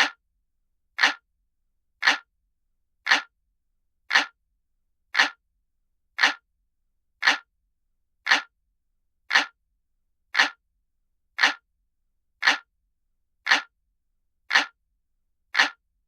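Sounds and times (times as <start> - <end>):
clock ticking: 0.0 - 0.2, 1.0 - 1.2, 2.0 - 2.3, 3.1 - 3.3, 4.1 - 4.4, 5.2 - 5.4, 6.2 - 6.4, 7.2 - 7.5, 8.3 - 8.5, 9.3 - 9.6, 10.4 - 10.6, 11.4 - 11.6, 12.4 - 12.7, 13.5 - 13.7, 14.5 - 14.8, 15.5 - 15.8.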